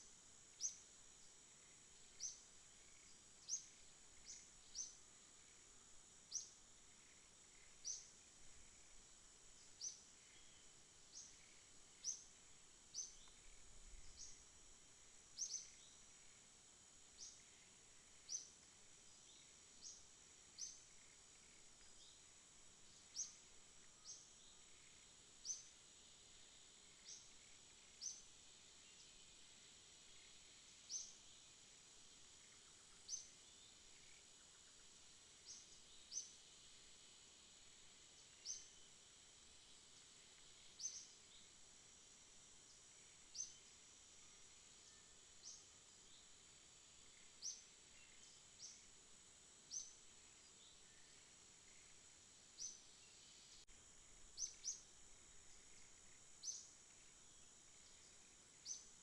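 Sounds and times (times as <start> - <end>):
high-pitched insect trill: 0.0 - 59.0.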